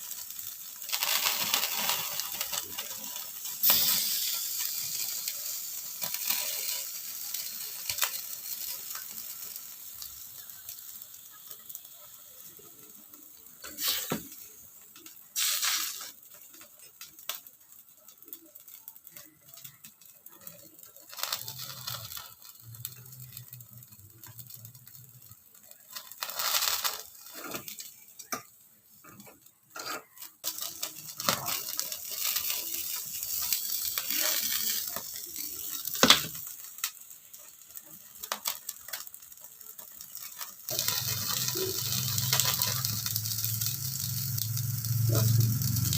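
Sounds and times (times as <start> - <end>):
pork sizzling in a hot pan: 0.0 - 45.9
utensils stirring and scraping: 25.9 - 36.5, 37.4 - 45.9.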